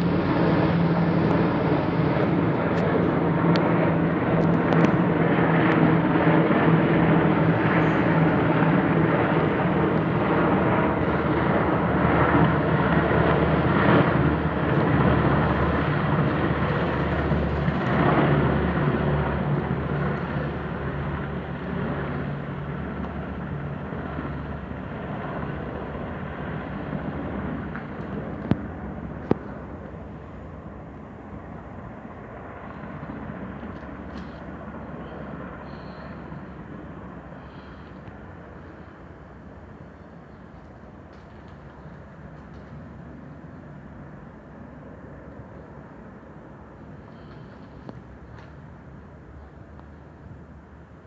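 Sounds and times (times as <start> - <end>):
helicopters flying over: 0.0 - 51.0.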